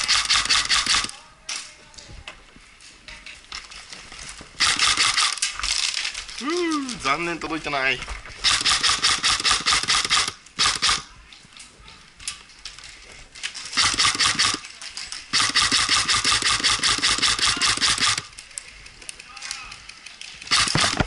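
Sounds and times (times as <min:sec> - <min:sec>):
airsoft gun rapid shots: 0:00.0 - 0:01.1, 0:04.6 - 0:05.4, 0:08.4 - 0:11.1, 0:13.8 - 0:14.6, 0:15.3 - 0:18.3, 0:20.5 - 0:21.0.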